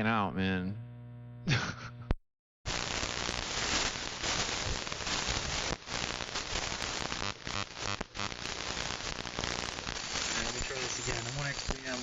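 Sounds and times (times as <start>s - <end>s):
radio static hiss: 2.7s - 12.0s.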